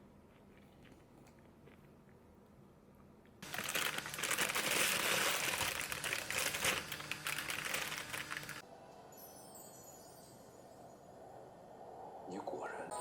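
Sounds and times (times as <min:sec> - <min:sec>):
dense crinkling crackling noise: 0:03.4 - 0:08.6.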